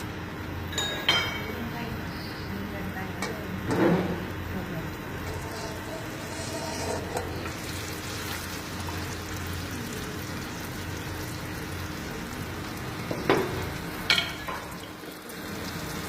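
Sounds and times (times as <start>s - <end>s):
fish sizzling in hot oil: 5.2s - 16.0s.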